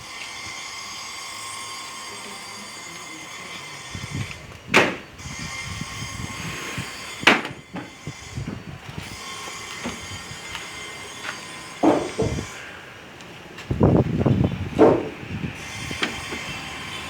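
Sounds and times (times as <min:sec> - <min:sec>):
sharp knocks: 0:04.7 - 0:05.1, 0:07.2 - 0:08.0, 0:11.8 - 0:12.5, 0:14.8 - 0:15.2.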